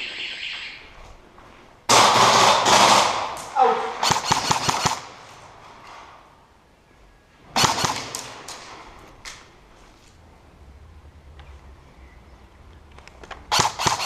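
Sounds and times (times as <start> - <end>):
airsoft guns firing: 1.9 - 5.3, 7.6 - 8.8, 13.5 - 14.0.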